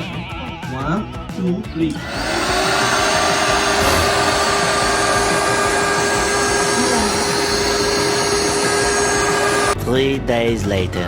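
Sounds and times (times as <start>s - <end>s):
electric air pump humming: 1.9s - 9.8s.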